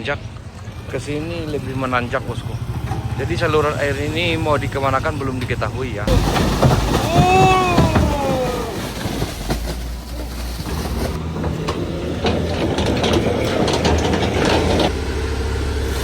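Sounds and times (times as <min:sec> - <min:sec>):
vehicle engine rumble: 0:00.0 - 0:16.0
rattling clicks: 0:08.8 - 0:15.0.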